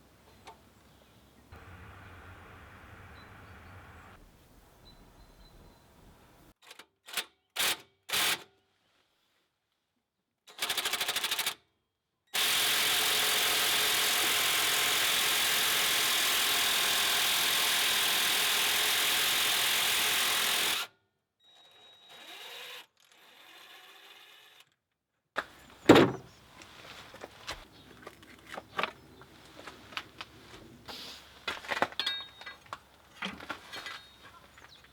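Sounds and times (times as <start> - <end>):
power tool running: 12.4 - 20.8
tool handling noises: 25.4 - 34.9.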